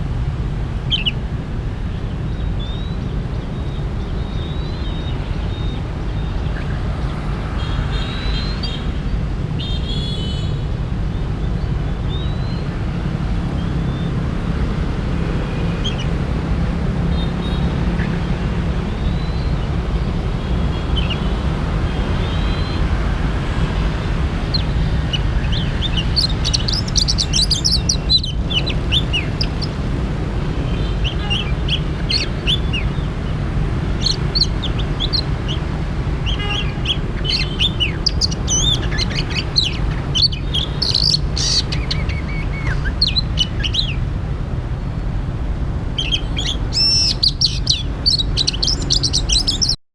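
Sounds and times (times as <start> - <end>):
songbird chirps and whistles: 2.3 - 6.6, 24.5 - 29.8, 30.7 - 33.1, 34.0 - 35.6, 36.2 - 44.0, 46.0 - 49.8.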